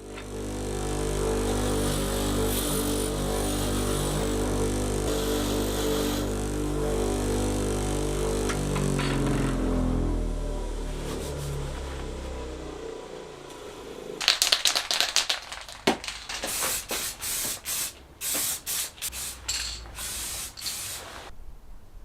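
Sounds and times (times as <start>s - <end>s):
background music: 0.0s - 14.2s
hissing spray bursts: 16.3s - 21.3s.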